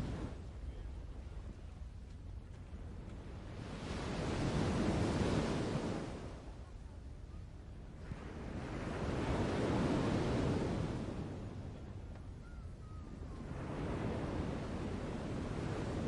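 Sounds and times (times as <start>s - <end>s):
sea waves washing on shore: 8.0s - 11.5s, 13.4s - 16.0s.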